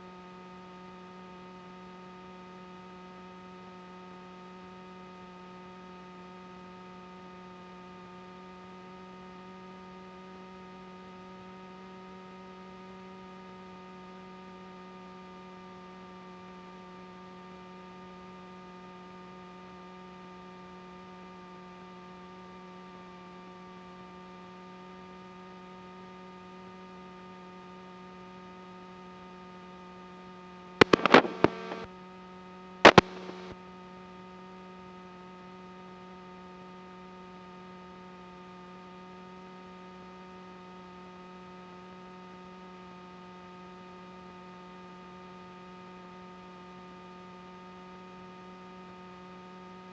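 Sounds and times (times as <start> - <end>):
loud clicking bursts: 30.8 - 31.9, 32.9 - 33.5.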